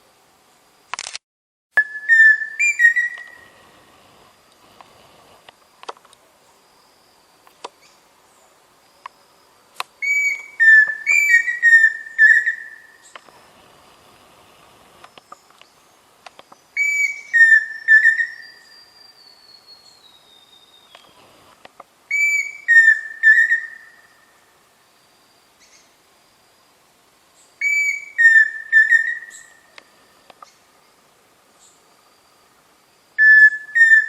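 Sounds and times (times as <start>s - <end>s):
cuckoo whistled song: 1.8s - 3.5s, 10.0s - 13.1s, 16.8s - 21.2s, 22.1s - 24.3s, 27.6s - 29.7s, 33.2s - 34.0s.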